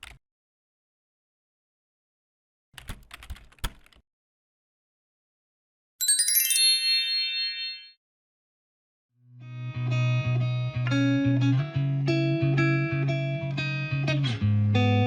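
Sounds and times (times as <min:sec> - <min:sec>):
sparkling chime effect: 0:06.0 - 0:08.0
guitar music: 0:09.3 - 0:15.0.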